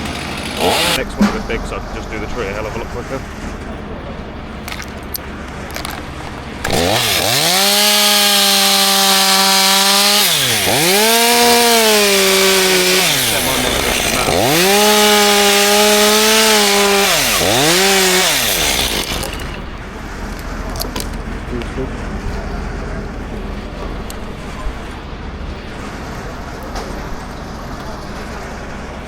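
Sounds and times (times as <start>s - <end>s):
chainsaw revving: 0.0s - 1.1s, 6.6s - 19.7s.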